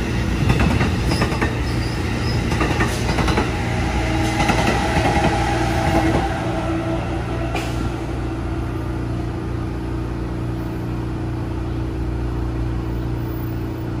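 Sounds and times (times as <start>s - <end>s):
train humming and rumbling: 0.0s - 14.0s.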